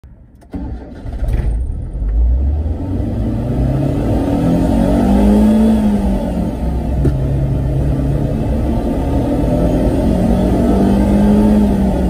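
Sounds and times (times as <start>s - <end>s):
car engine accelerating: 0.5s - 12.0s.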